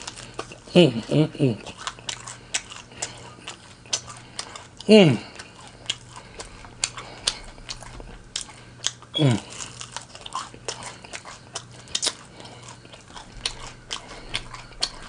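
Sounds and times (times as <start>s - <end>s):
crunchy chewing: 0.0s - 15.0s
person humming mm: 4.9s - 5.4s, 9.2s - 9.6s.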